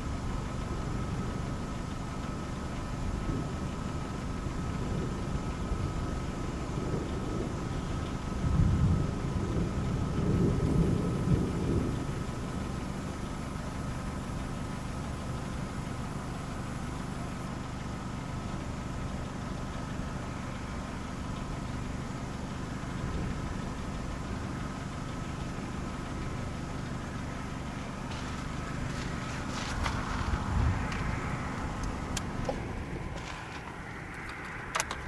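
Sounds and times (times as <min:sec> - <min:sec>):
low rumble: 0:00.0 - 0:15.0, 0:22.3 - 0:35.0
car engine idling: 0:00.0 - 0:35.0.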